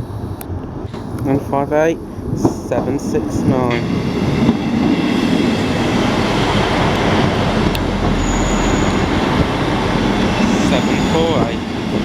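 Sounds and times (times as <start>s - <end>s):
train rumbling on track: 0.0s - 12.0s
thin high squeal: 8.0s - 11.3s.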